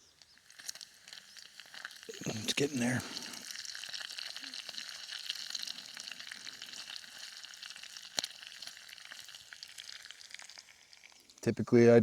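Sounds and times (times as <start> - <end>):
bacon sizzling in a frying pan: 0.0 - 11.4
fat popping: 0.5 - 9.3.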